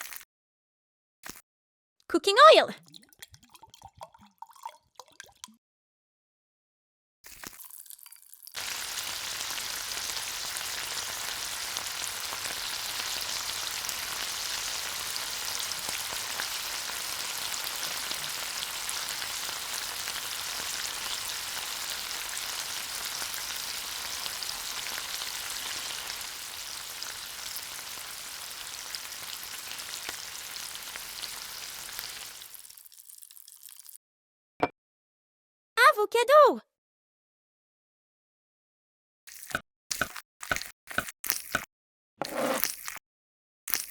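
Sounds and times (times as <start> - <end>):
fish sizzling in hot oil: 7.6 - 34.0.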